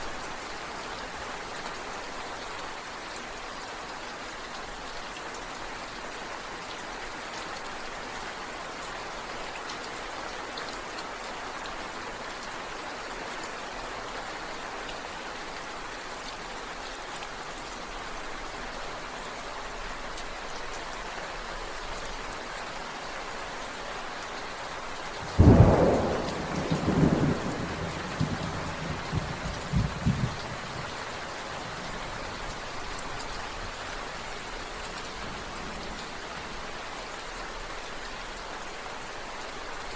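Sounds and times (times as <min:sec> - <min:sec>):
steady rain falling: 0:00.0 - 0:39.9
rolling thunderclap: 0:25.3 - 0:30.9.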